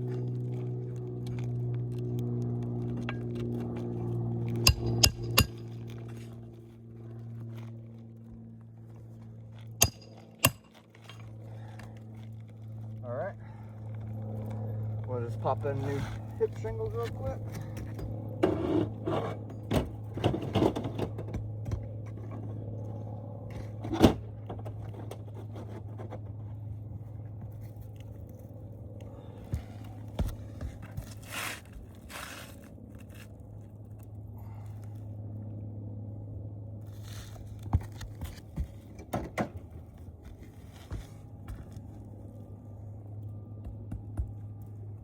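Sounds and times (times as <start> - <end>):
steady low hum: 0.0 - 45.0
shingles scraping and knocking: 29.6 - 33.4.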